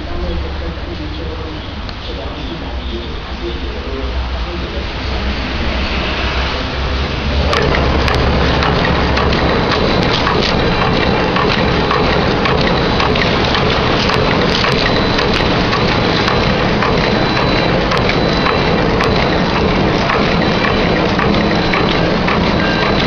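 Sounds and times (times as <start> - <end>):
machine clattering: 7.0 - 23.0.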